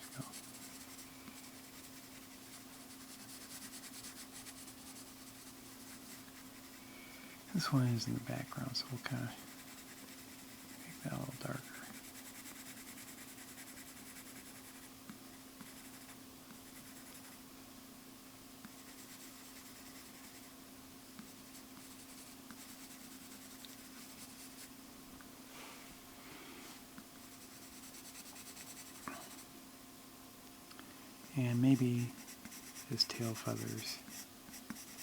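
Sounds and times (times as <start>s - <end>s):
drawing tool scratching on paper: 0.0s - 6.8s, 9.4s - 11.0s, 11.9s - 14.9s, 15.6s - 17.4s, 18.7s - 20.5s, 21.3s - 24.7s, 27.3s - 29.4s, 32.1s - 35.0s
steady low hum: 0.0s - 35.0s.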